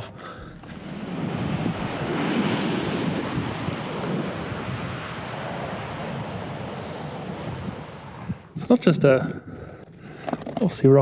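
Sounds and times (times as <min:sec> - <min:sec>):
wind buffeting microphone: 0:00.0 - 0:11.0
surf washing against rocks: 0:00.6 - 0:08.6.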